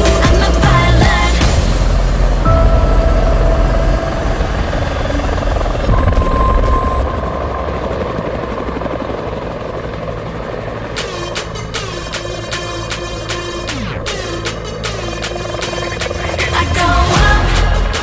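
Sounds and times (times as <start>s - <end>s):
helicopter flying: 1.4s - 17.0s.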